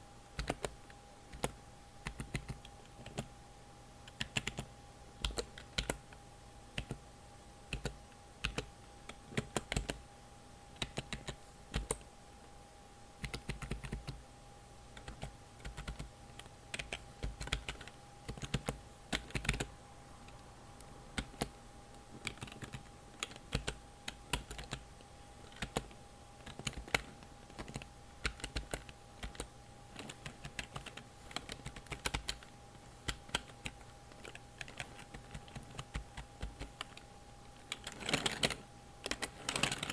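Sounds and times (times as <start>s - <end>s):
keyboard typing clicks: 0.4s - 3.3s, 4.0s - 6.0s, 6.8s - 7.0s, 7.7s - 10.0s, 10.8s - 12.1s, 13.2s - 14.2s, 15.0s - 19.7s, 22.2s - 24.8s, 25.4s - 39.9s.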